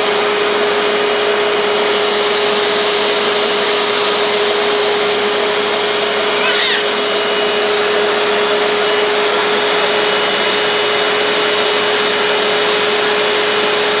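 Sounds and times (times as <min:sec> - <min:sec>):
vacuum cleaner running: 0:00.0 - 0:14.0
brief rising squeak: 0:06.2 - 0:07.4.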